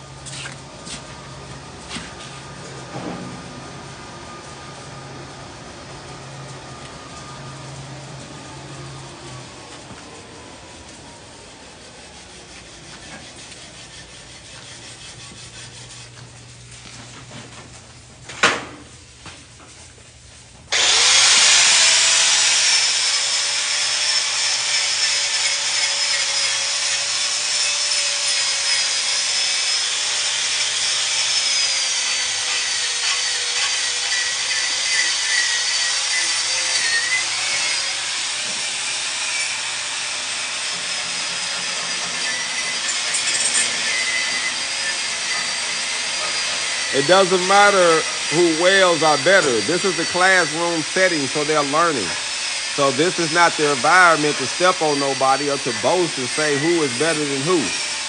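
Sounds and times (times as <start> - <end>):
welding arc hissing: 20.7 - 23.5.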